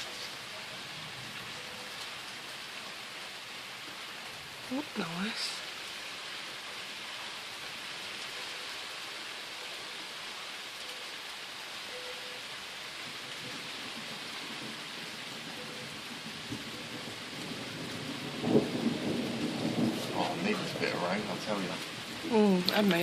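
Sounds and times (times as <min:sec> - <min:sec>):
steady rain falling: 0:00.0 - 0:23.0
thunder rumbling: 0:13.1 - 0:23.0.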